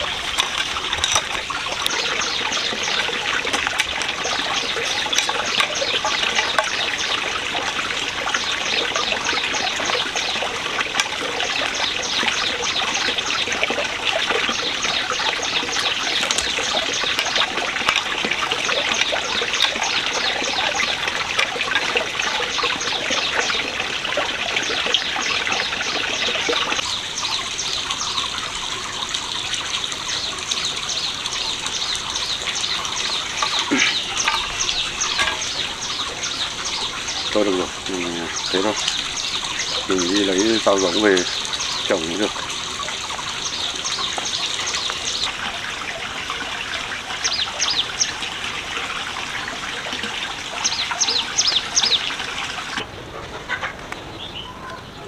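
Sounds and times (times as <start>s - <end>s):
fast high ticking: 0.0s - 26.8s, 30.6s - 45.3s
water trickling: 0.0s - 55.0s.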